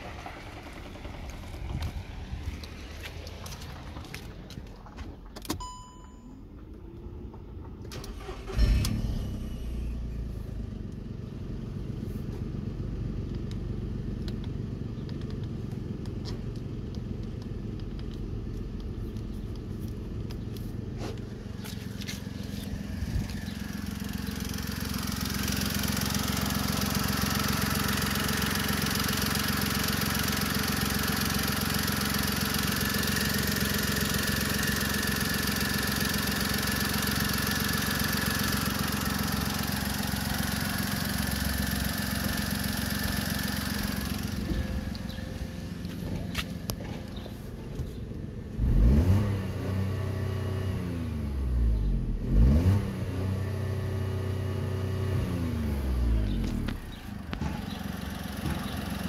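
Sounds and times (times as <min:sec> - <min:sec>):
car engine starting and idling: 0:00.0 - 0:59.0
short beep: 0:05.6 - 0:06.4.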